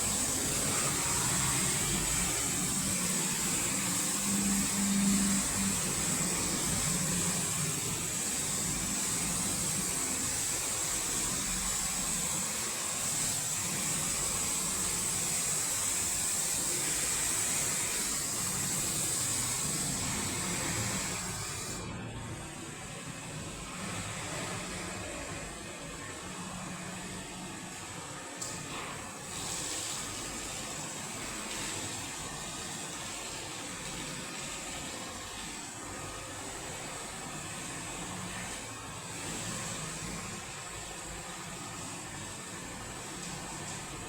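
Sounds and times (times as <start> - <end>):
car wash machine hissing: 0.0 - 44.0.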